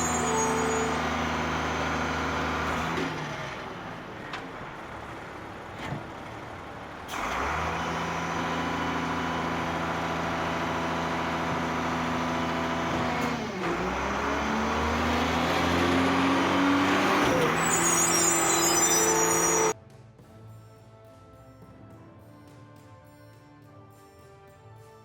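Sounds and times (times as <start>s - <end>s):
heavy truck engine running: 0.0s - 19.8s.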